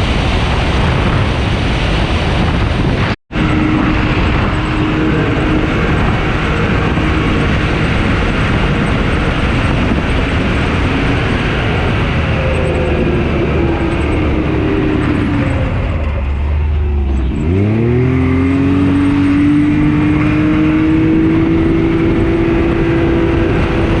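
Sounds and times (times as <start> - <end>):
vehicle engine accelerating: 0.0 - 24.0.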